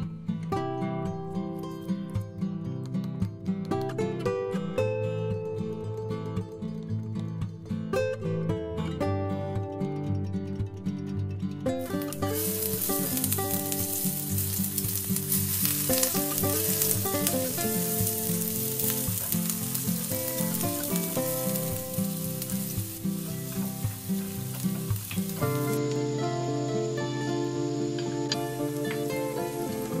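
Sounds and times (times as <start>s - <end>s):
garlic sizzling in hot oil: 11.9s - 30.0s.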